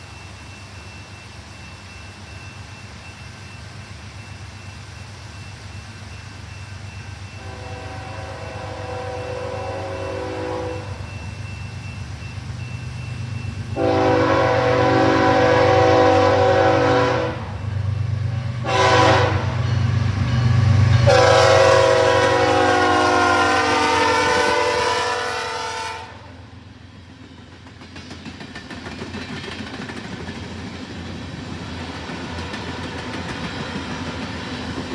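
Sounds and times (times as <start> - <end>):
diesel locomotive engine rumble: 0.0 - 34.9
train air horn blasts: 7.4 - 11.1, 13.8 - 17.6, 18.6 - 19.6, 21.0 - 26.4.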